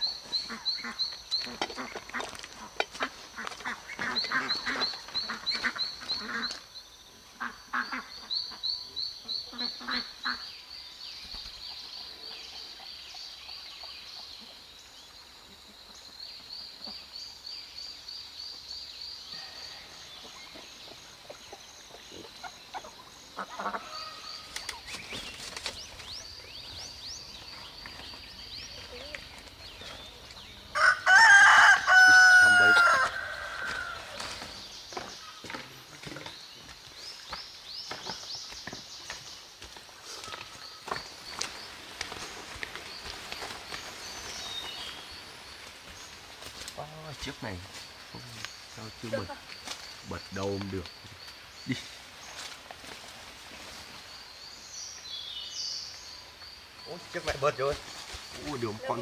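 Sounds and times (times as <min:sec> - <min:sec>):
fowl calling: 0:00.0 - 0:06.6, 0:20.9 - 0:24.9, 0:30.7 - 0:34.6
rooster crowing: 0:30.7 - 0:34.2.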